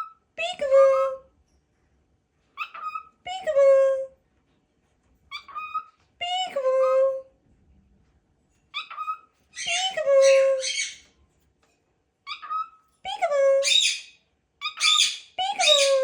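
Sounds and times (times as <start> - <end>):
parrot calling: 2.6 - 3.3, 5.3 - 6.0, 8.7 - 11.1, 12.2 - 12.9, 13.6 - 16.0.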